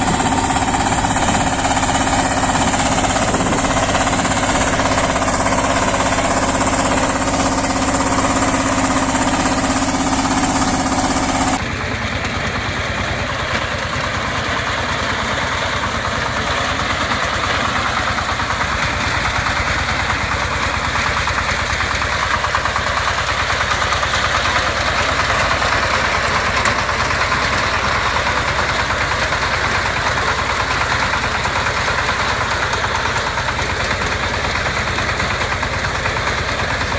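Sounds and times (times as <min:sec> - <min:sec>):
engine with rapid even pulse: 0:00.0 - 0:36.9
engine with strong steady tone: 0:00.0 - 0:36.9.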